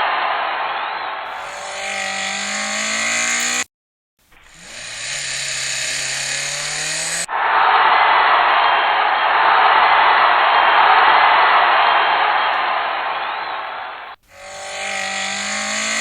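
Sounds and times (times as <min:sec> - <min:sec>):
car engine revving: 0:01.3 - 0:03.7, 0:04.4 - 0:07.3, 0:14.2 - 0:16.0.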